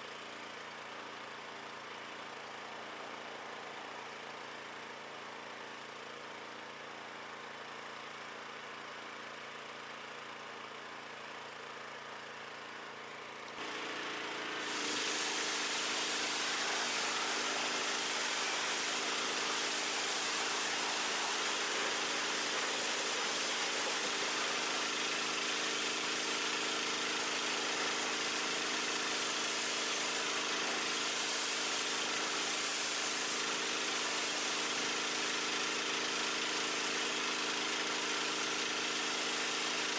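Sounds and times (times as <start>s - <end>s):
pressure washer running: 13.0s - 39.9s
spray hissing: 14.6s - 37.4s, 38.2s - 39.9s.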